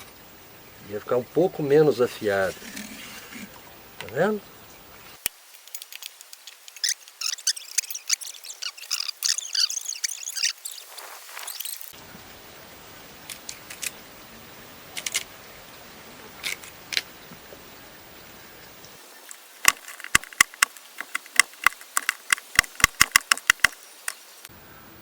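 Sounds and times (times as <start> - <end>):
knife chopping on bamboo: 19.6 - 24.2.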